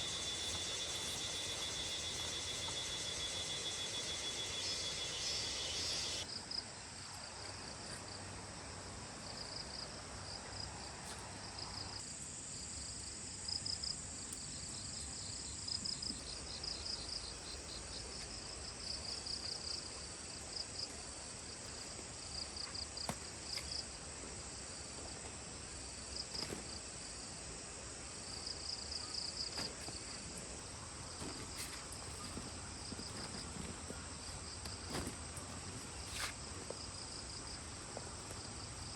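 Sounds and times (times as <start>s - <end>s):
high-pitched buzz: 0.0s - 6.2s
insects chirping in pulses: 0.0s - 6.3s.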